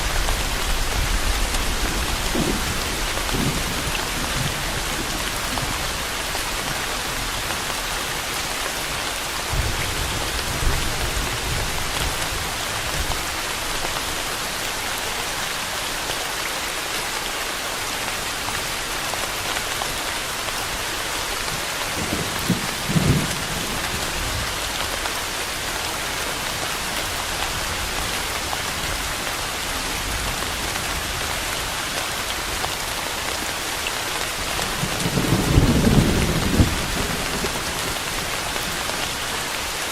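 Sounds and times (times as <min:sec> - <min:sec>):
thunder rumbling: 0:00.0 - 0:06.8, 0:22.0 - 0:24.6, 0:34.6 - 0:38.4
steady rain falling: 0:00.0 - 0:39.9.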